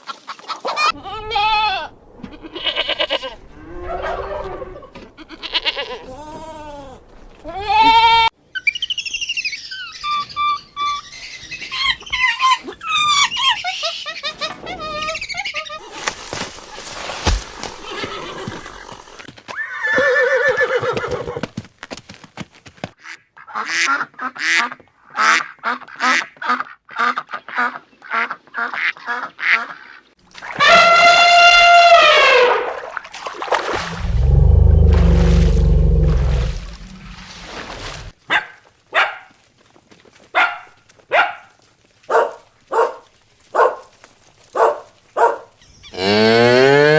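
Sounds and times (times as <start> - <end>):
farm birds squawking and calling: 8.6 - 15.9.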